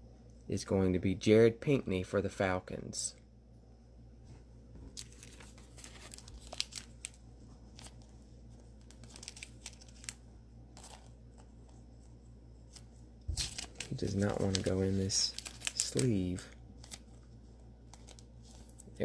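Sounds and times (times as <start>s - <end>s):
plastic crinkling and rustling: 4.8s - 19.0s.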